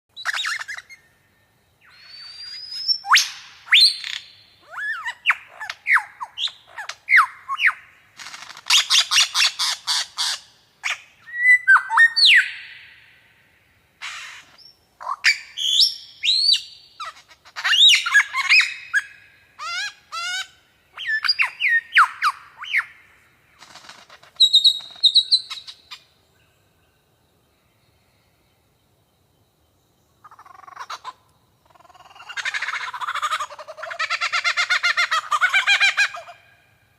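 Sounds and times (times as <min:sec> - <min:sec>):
birds calling: 0:14.0 - 0:26.5, 0:30.2 - 0:36.7.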